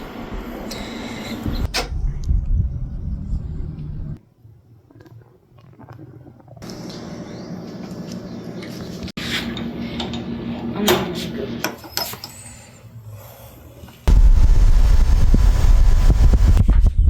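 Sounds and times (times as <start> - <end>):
steady low hum: 0.0 - 4.2
metal tools clinking: 11.7 - 12.7.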